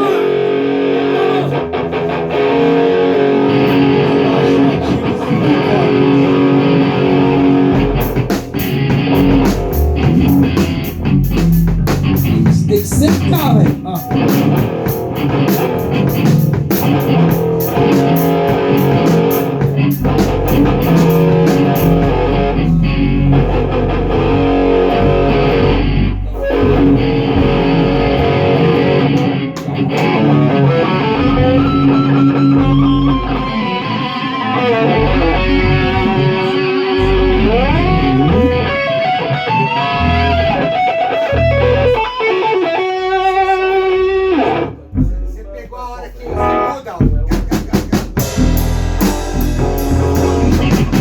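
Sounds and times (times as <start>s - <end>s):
electric guitar: 0.0s - 45.1s, 46.3s - 51.0s
bass guitar: 0.0s - 51.0s
drum cymbals: 47.2s - 51.0s.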